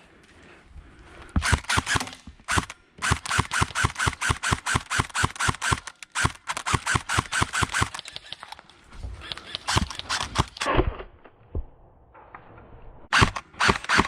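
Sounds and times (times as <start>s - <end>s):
airsoft gun rapid firing: 1.4s - 8.2s, 9.5s - 10.7s, 13.1s - 14.0s.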